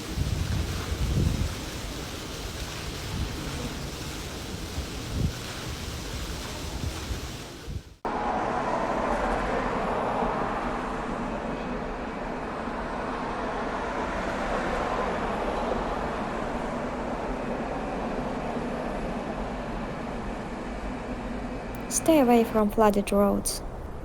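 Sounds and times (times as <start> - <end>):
wind buffeting microphone: 0.0 - 8.0
heavy rain: 0.0 - 10.8
wind: 0.0 - 24.0.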